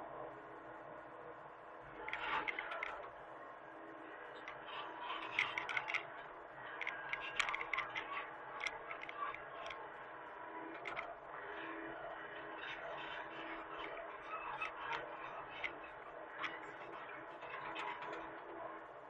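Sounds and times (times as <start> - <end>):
machine clicks and scrapes: 4.4 - 9.7.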